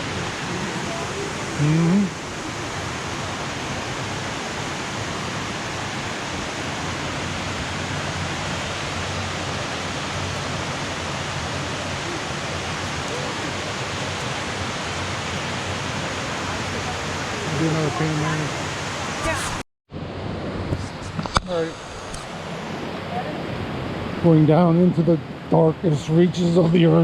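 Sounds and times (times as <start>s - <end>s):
water rushing over rocky falls: 0.0s - 19.6s.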